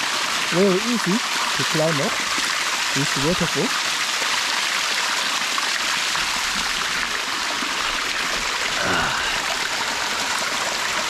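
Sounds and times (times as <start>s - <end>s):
waterfall rushing over rocks: 0.0s - 11.0s
person speaking: 3.0s - 3.7s.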